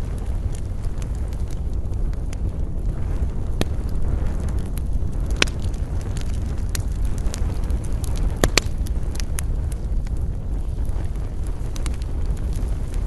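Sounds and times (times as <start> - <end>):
campfire crackling: 0.0 - 13.0
low rumble of wind: 0.0 - 13.0.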